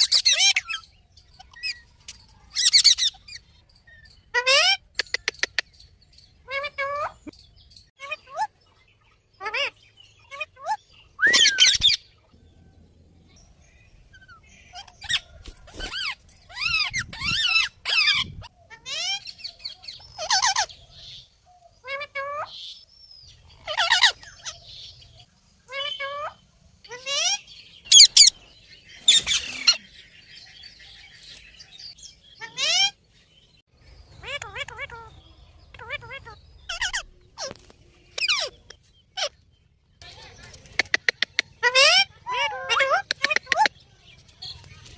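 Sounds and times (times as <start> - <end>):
parrot chirping: 0.0 - 1.9, 2.5 - 7.3, 9.4 - 12.2, 20.0 - 20.7, 25.7 - 28.4, 34.2 - 37.5
parrot squawk: 41.6 - 43.7.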